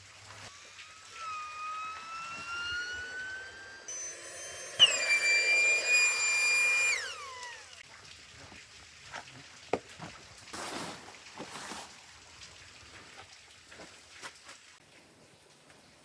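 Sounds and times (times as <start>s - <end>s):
kettle whistling: 0.4s - 7.8s.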